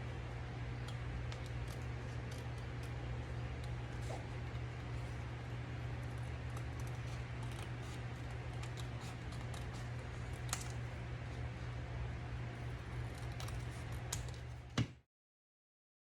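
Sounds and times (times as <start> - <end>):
scissors snipping card: 6.0 - 10.8, 12.8 - 14.5.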